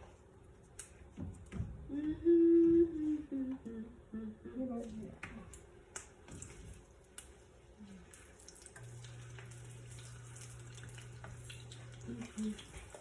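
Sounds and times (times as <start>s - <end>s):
steady low hum: 0.0s - 13.0s
small crackles: 4.9s - 13.0s
oil frying in a pan: 6.2s - 13.0s.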